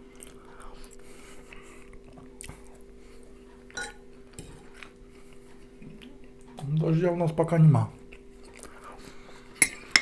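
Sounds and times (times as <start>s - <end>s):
close-up chewing: 0.0s - 6.6s
metal fork clinking on frying pan: 3.8s - 4.0s.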